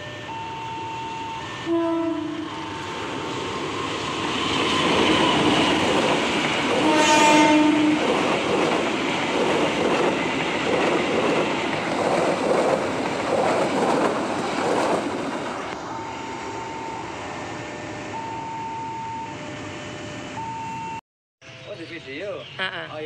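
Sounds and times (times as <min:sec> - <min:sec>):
train horn blast: 0:01.6 - 0:02.8, 0:06.7 - 0:08.1.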